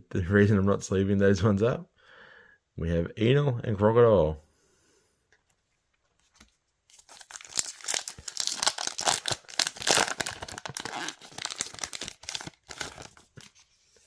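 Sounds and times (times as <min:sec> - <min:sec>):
plastic wrapper ripped and crinkled: 0:06.9 - 0:13.4.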